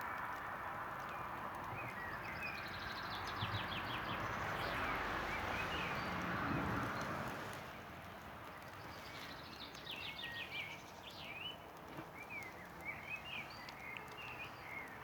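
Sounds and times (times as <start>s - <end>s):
small birds chirping: 1.1s - 6.2s, 8.5s - 15.0s.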